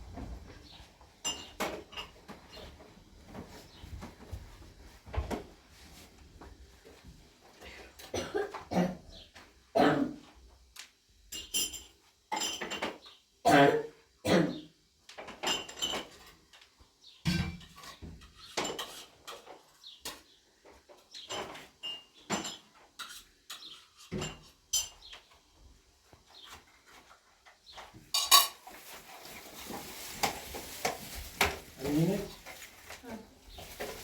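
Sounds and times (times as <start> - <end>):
dishes and utensils clinking: 1.2 - 2.7, 11.3 - 13.1, 15.2 - 16.6, 17.2 - 20.2, 21.2 - 25.4, 27.7 - 29.0.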